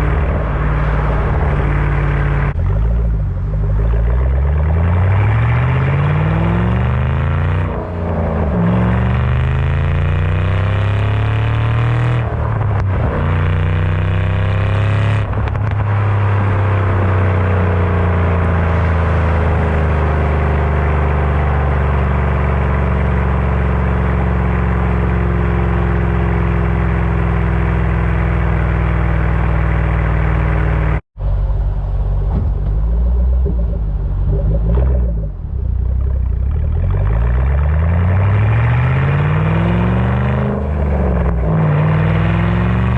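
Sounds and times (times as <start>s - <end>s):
car engine accelerating through gears: 0.0s - 42.9s
low steady engine sound: 31.2s - 37.8s.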